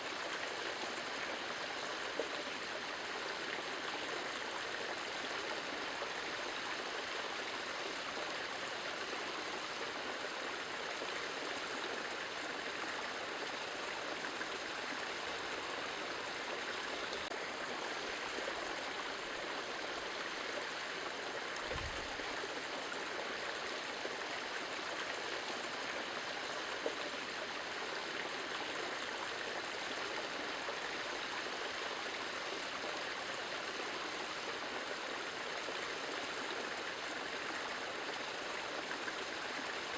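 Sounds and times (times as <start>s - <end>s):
running water rushing: 0.0s - 39.9s
low thump: 21.7s - 22.1s.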